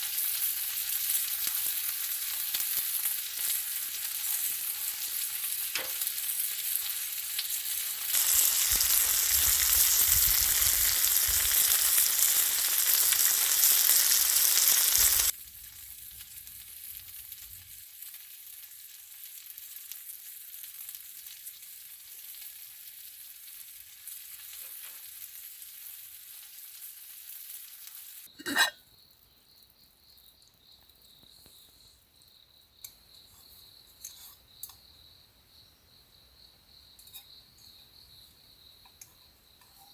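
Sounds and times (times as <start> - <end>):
meat sizzling on a grill: 0.0 - 28.3
crickets chirping: 4.3 - 17.7, 29.0 - 39.7.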